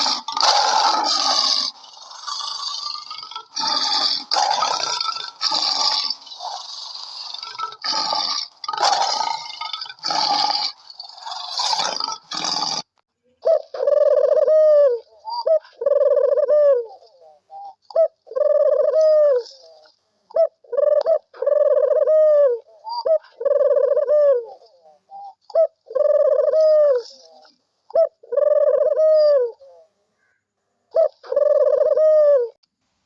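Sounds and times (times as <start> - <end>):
bird cooing: 13.3 - 32.6.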